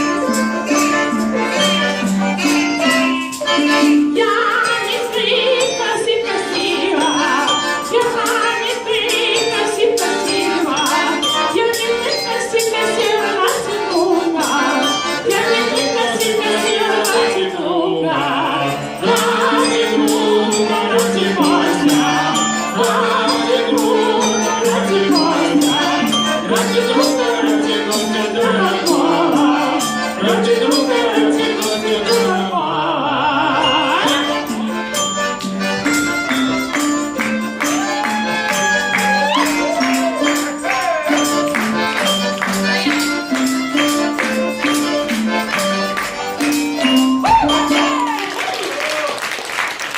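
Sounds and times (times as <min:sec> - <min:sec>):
ensemble playing folk melody: 0:00.0 - 0:48.2
fast percussion beat: 0:33.9 - 0:49.1.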